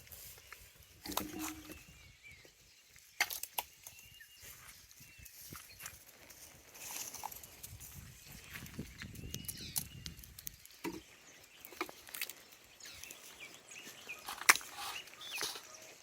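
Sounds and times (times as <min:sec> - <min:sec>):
high bird chirps: 0:00.7 - 0:02.7, 0:08.0 - 0:16.0.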